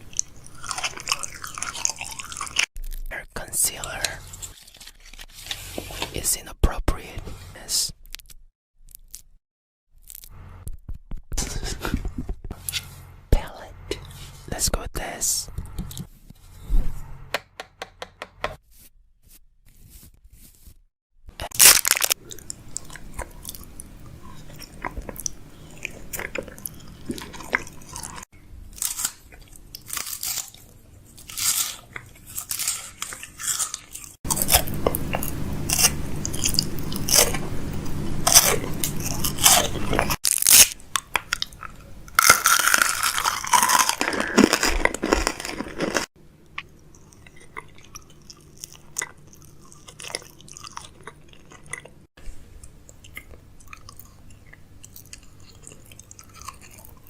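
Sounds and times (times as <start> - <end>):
crunching and tapping handling: 40.9 - 46.1.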